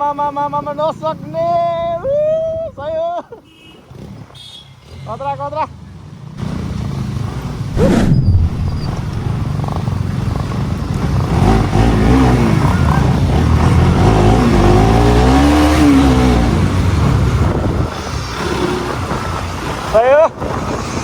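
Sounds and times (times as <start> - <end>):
motorcycle engine rumbling: 7.6 - 11.8.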